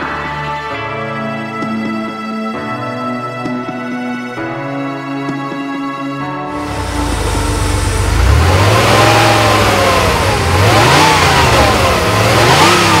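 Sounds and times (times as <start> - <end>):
car engine revving: 6.5 - 13.0.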